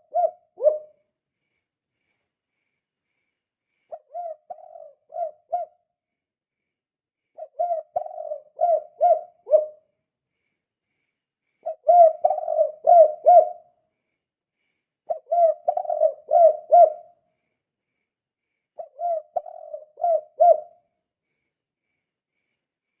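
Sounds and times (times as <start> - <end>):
dove cooing: 0.0 - 1.0, 3.9 - 5.8, 7.4 - 9.9, 11.6 - 13.7, 15.1 - 17.2, 18.8 - 20.8.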